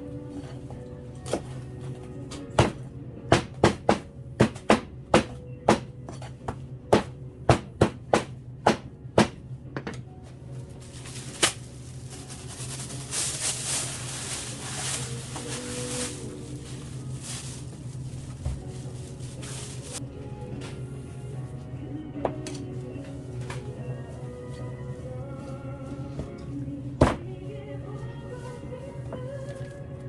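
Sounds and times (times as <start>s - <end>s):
background music: 0.0s - 30.0s
steady low hum: 6.4s - 30.0s.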